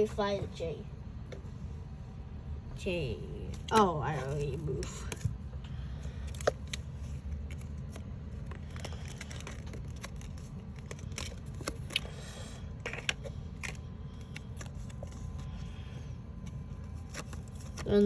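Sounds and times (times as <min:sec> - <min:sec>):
steady low hum: 0:00.0 - 0:18.0
paper pieces clicking and rustling: 0:06.2 - 0:15.5.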